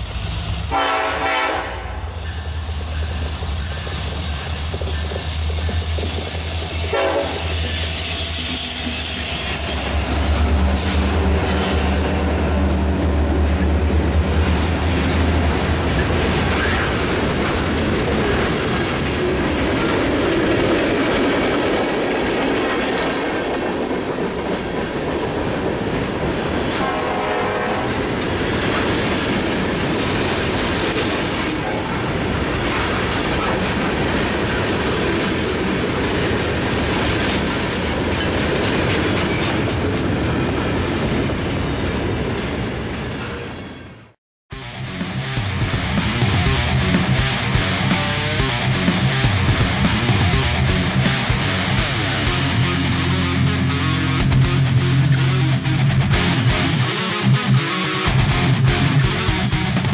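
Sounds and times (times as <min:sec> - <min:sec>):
diesel locomotive engine drone: 0:00.0 - 0:25.1, 0:42.7 - 0:59.9
train wheels rumbling and clattering: 0:02.0 - 0:44.2.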